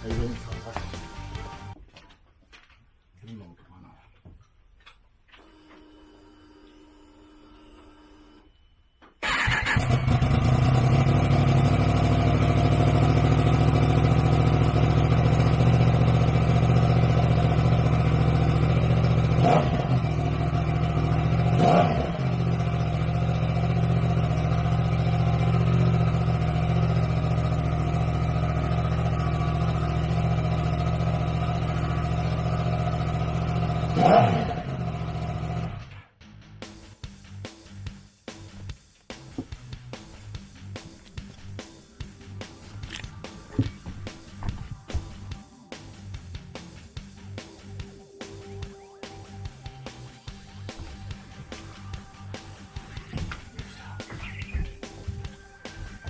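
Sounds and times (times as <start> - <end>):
motorcycle engine idling: 9.2 - 35.8, 38.6 - 56.0
motorcycle engine revving: 9.2 - 35.8, 49.3 - 56.0.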